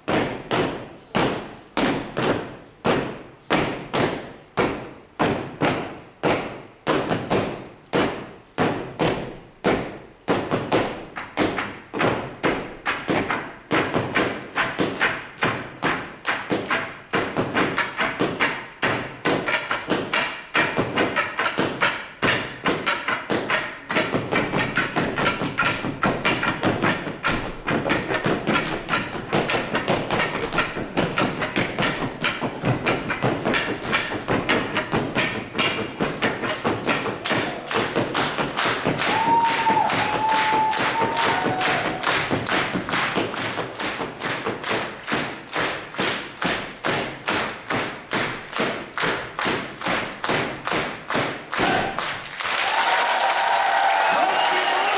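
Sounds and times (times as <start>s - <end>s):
wooden handles knocking in rhythm: 0.0s - 52.3s.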